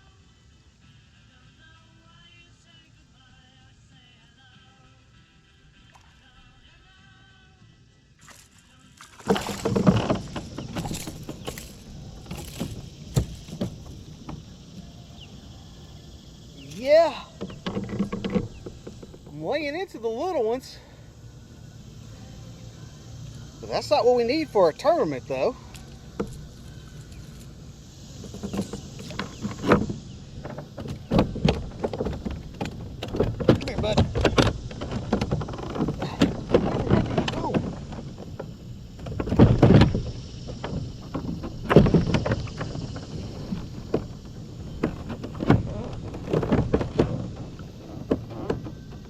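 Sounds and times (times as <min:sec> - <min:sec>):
knocks and bumps aboard kayak: 0:08.3 - 0:20.6, 0:23.5 - 0:49.0.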